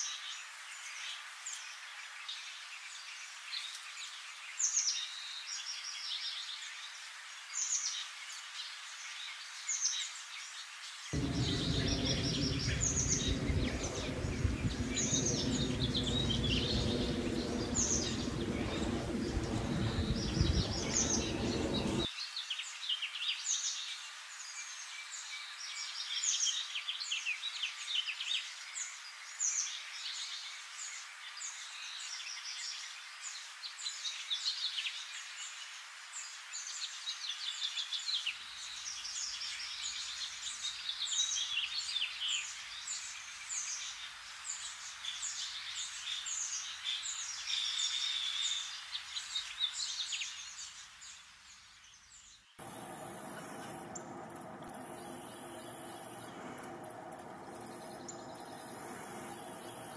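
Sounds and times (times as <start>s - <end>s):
low background noise: 10.9s - 22.3s, 52.4s - 59.9s
songbirds chirping and singing: 11.2s - 22.1s, 52.6s - 59.9s.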